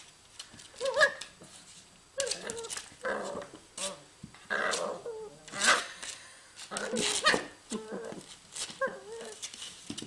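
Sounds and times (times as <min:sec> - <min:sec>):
puppy growling and whining: 0:02.2 - 0:05.9, 0:06.7 - 0:09.4.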